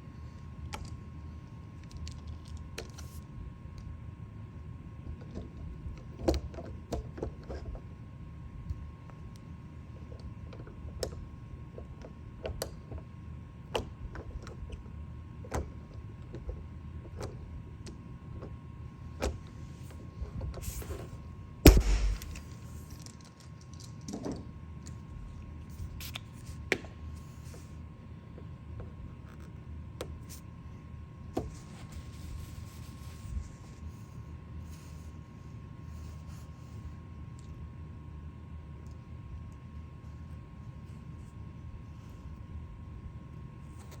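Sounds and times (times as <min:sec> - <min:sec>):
low hum: 0:21.6 - 0:22.6.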